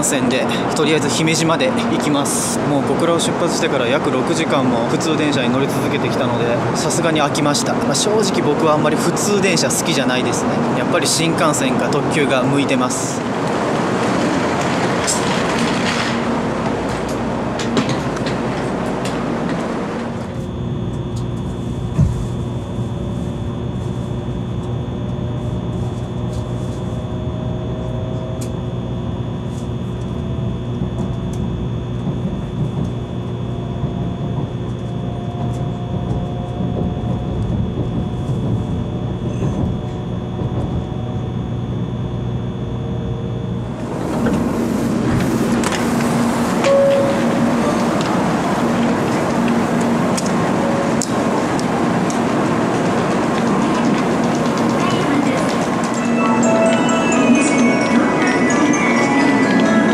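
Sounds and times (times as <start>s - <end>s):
train rushing noise: 0.0s - 20.5s, 29.5s - 41.4s, 43.5s - 59.9s
electric train humming: 0.0s - 59.9s
rising whine: 16.1s - 59.9s.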